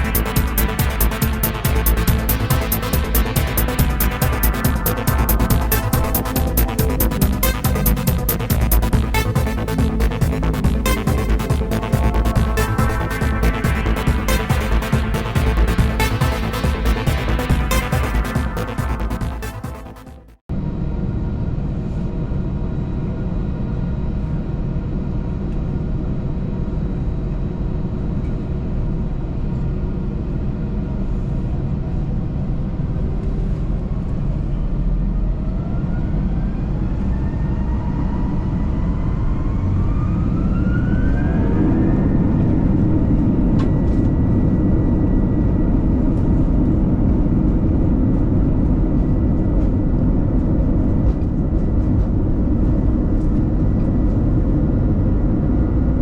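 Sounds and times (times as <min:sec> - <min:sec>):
jet engine whine: 0:00.0 - 0:19.7, 0:20.5 - 0:56.0
jet engine rumble: 0:20.5 - 0:56.0.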